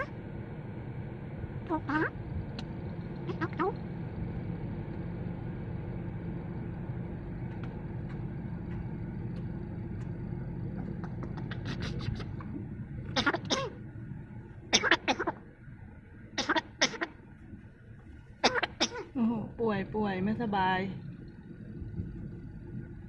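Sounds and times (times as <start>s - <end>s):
warbling calls: 0.0s - 0.2s, 1.6s - 4.8s, 10.7s - 19.2s
low engine-like hum: 0.0s - 23.0s.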